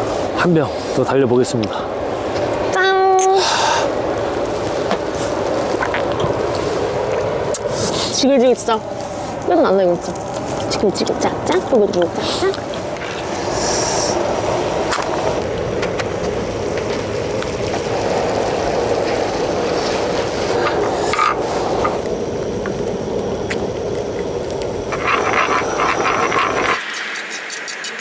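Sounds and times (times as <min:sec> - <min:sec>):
food sizzling on a griddle: 0:02.1 - 0:28.0.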